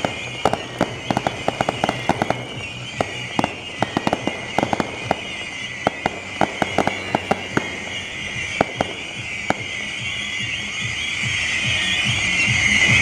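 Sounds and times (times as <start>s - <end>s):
fireworks cracking and popping: 0.0s - 13.0s.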